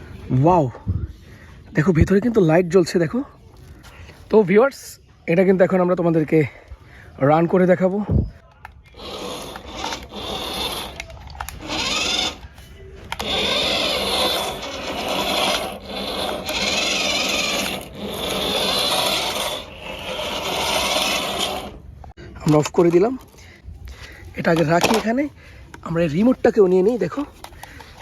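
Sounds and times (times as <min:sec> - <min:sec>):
toy motor whirring: 0:08.6 - 0:22.6, 0:26.2 - 0:28.0.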